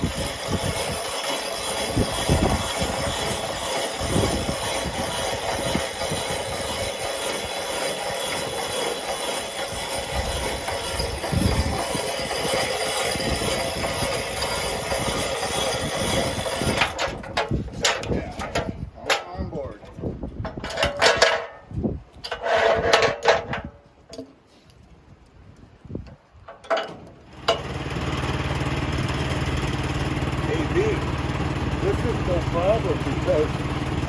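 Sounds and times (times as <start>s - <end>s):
sawmill machinery drone: 0.0s - 17.1s, 27.3s - 34.0s.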